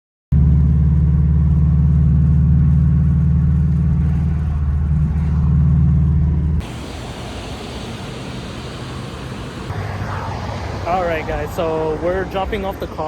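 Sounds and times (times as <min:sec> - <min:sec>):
engine with low exhaust note: 0:00.3 - 0:10.3.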